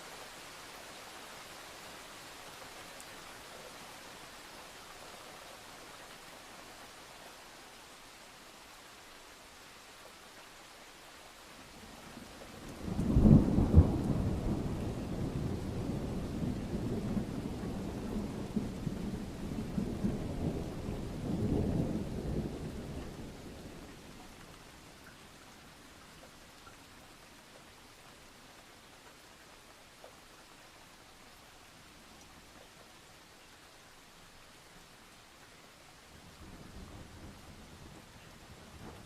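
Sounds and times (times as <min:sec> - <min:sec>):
light rain hissing: 0:00.0 - 0:39.0
thunder claps and rumbling: 0:12.6 - 0:24.0, 0:36.5 - 0:39.0.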